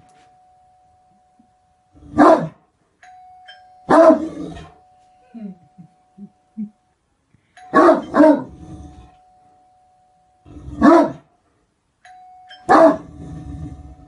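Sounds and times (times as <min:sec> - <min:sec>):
faint steady high tone: 0:00.0 - 0:14.0
dog barking deeply: 0:10.8 - 0:11.2, 0:12.7 - 0:13.1.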